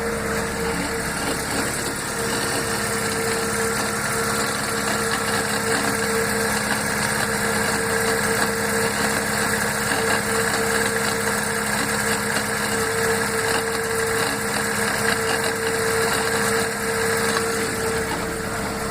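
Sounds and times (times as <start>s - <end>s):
car engine idling: 0.0s - 18.9s
gearbox whine: 0.0s - 18.9s.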